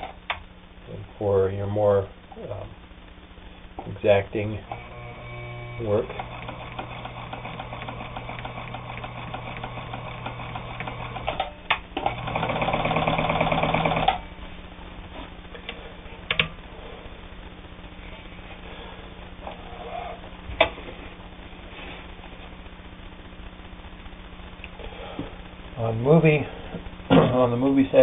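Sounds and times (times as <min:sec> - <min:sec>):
sewing machine stitching: 0:04.7 - 0:14.2.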